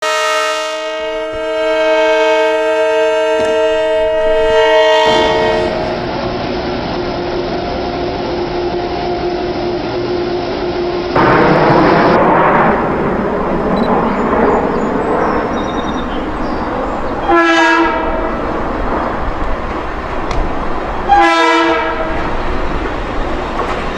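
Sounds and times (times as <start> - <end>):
train horn blast: 0.0 - 6.1, 13.3 - 22.4
train passing at speed: 0.0 - 23.9.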